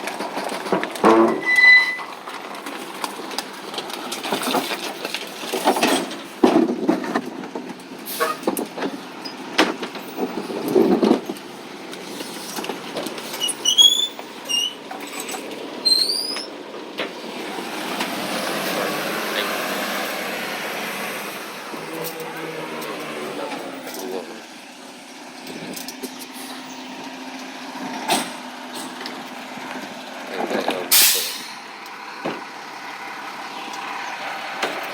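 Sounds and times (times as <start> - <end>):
clattering knocks and thuds: 0.0 - 1.7, 2.3 - 7.8, 8.4 - 11.4
truck engine running: 0.0 - 34.9
quick high squeaks: 13.4 - 14.8, 15.8 - 16.5.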